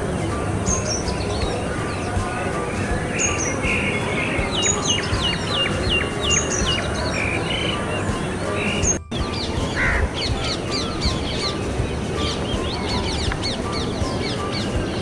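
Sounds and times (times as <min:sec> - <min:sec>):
birds calling and chirping: 0:00.0 - 0:15.0.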